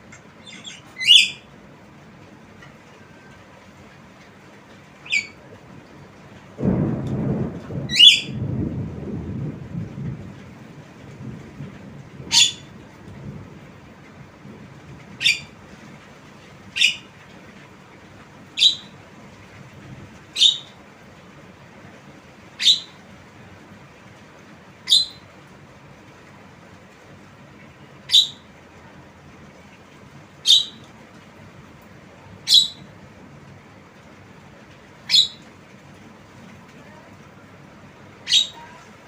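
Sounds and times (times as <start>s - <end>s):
low rumble: 6.6s - 15.1s
myna calling: 38.3s - 38.9s.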